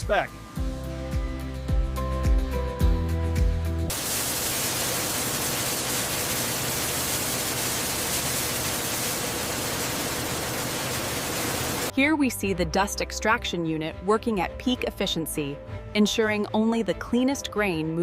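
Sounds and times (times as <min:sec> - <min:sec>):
background music with steady beat: 0:00.0 - 0:03.9
dust extractor air hiss: 0:03.9 - 0:11.9.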